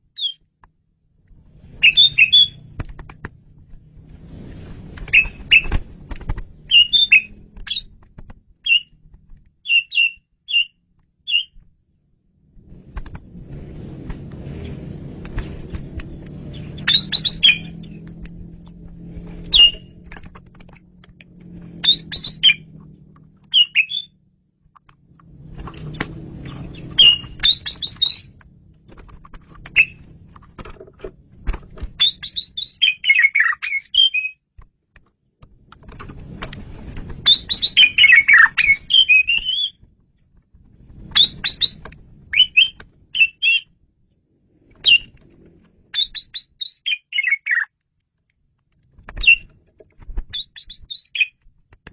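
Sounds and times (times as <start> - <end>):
starling singing chattering whistles: 1.8 - 2.6, 5.1 - 5.7, 6.7 - 7.9, 8.6 - 8.9, 9.6 - 11.6, 16.6 - 18.0, 19.5 - 19.9, 21.8 - 22.7, 23.5 - 24.2, 26.6 - 28.3, 32.0 - 34.4, 37.2 - 39.8, 41.2 - 43.7, 44.8 - 45.1, 46.0 - 47.7, 50.4 - 51.4.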